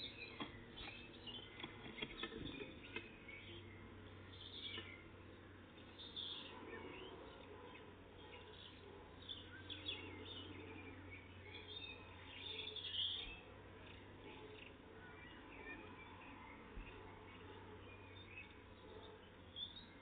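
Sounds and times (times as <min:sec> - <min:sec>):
low steady hum: 0:00.0 - 0:20.0
small songbirds chirping: 0:00.0 - 0:20.0.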